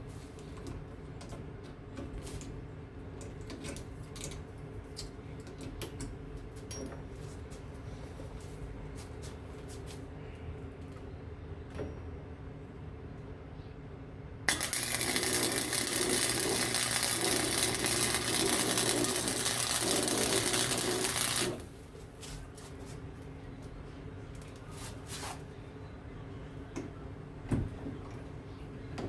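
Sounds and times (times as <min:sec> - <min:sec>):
welding arc crackling hiss: 0:14.5 - 0:21.7.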